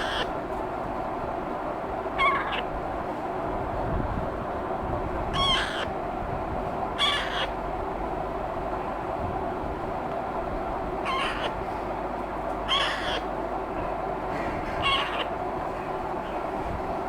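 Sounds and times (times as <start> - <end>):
parakeet chicks squawking: 0.0 - 0.3, 2.2 - 2.7, 5.4 - 6.0, 7.0 - 7.6, 11.1 - 11.6, 12.7 - 13.3, 14.7 - 15.4.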